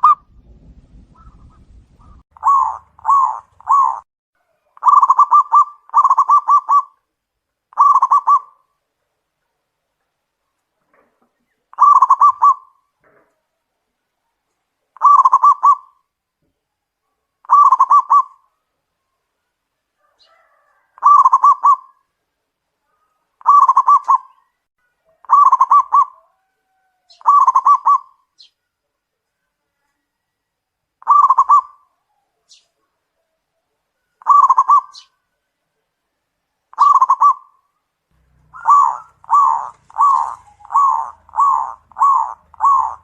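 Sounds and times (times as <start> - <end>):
dove cooing: 1.2 - 4.0, 4.7 - 7.0, 7.7 - 8.7, 11.7 - 12.8, 15.0 - 16.0, 17.4 - 18.4, 20.0 - 22.1, 23.0 - 24.4, 25.1 - 28.2, 31.0 - 32.6, 34.2 - 35.2, 36.7 - 37.5, 38.2 - 43.0.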